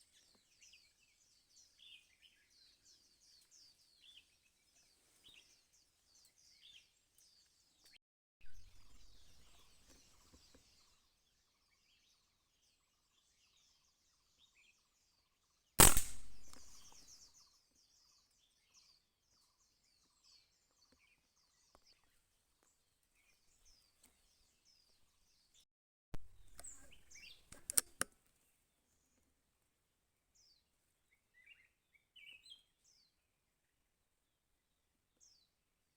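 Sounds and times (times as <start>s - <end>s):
small birds chirping: 0.0s - 25.6s, 26.2s - 29.6s, 30.3s - 35.9s
loud gunshot: 15.8s - 16.8s
sharp clicks: 15.8s - 16.9s.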